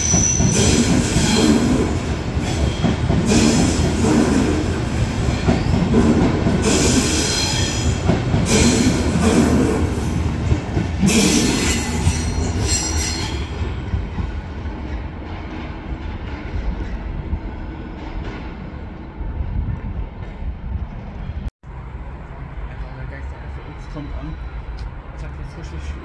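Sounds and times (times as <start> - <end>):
train wheel squeal: 0.0 - 1.8, 6.6 - 9.4, 11.1 - 13.6
train rumble: 0.0 - 26.0.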